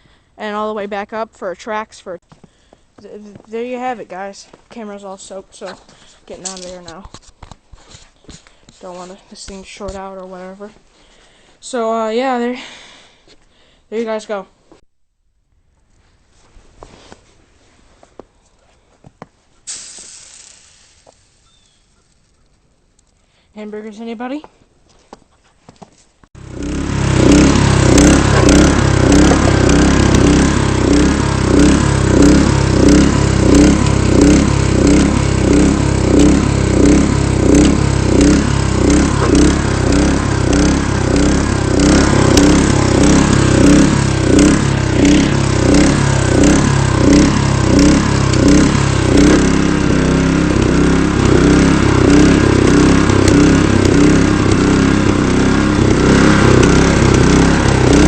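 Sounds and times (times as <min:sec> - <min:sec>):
snowblower engine running: 0:26.4 - 0:58.0.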